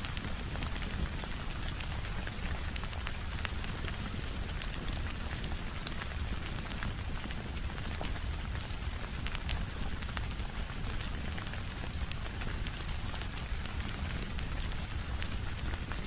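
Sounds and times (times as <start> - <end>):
rain pattering on a window: 0.0 - 16.0
wood fire crackling: 0.0 - 16.0.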